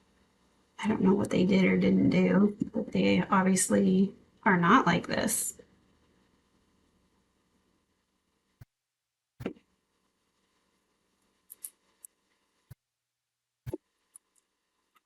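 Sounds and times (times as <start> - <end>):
small objects clicking and tapping: 11.5 - 12.2.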